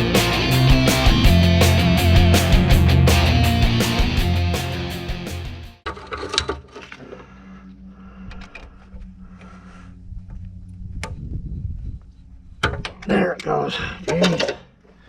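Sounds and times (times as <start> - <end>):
metal clicks and knocks: 12.6 - 14.7.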